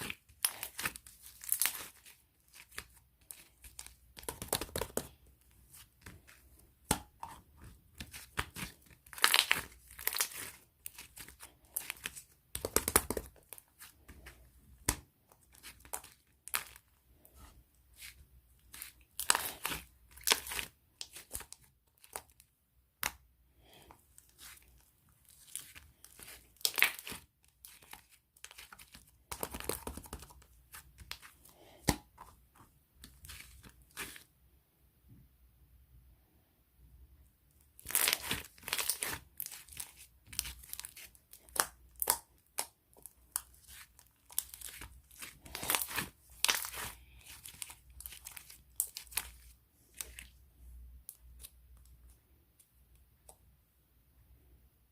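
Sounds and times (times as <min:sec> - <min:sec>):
crinkling and tearing: 0:00.0 - 0:06.4, 0:07.6 - 0:22.5, 0:23.8 - 0:32.3, 0:37.8 - 0:50.3.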